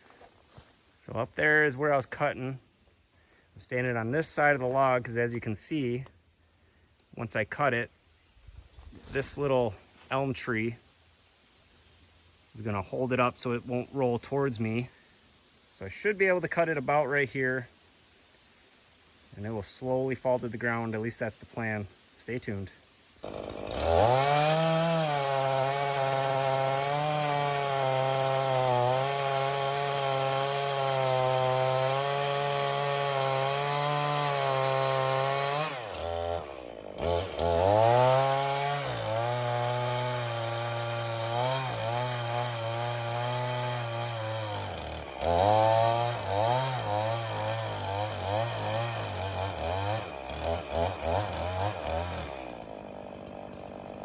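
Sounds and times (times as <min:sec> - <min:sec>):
chainsaw cutting a log: 0:23.2 - 0:54.0.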